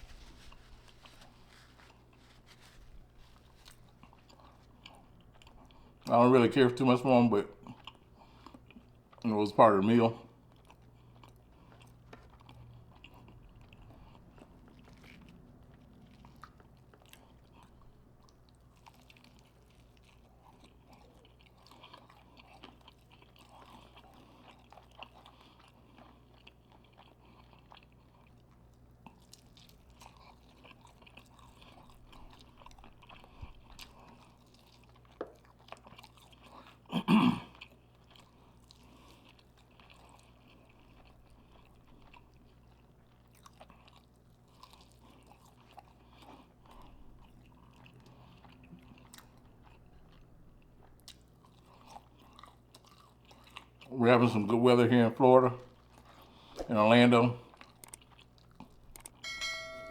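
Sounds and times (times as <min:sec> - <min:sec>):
chewing and crunching food: 0:00.0 - 0:59.4
wet clicks and crackles: 0:57.7 - 0:59.2.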